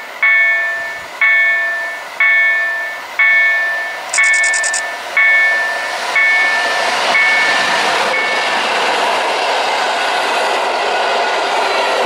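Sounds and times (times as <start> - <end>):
train wheels rushing on rail: 0.0 - 12.0
bell ringing: 0.2 - 8.5.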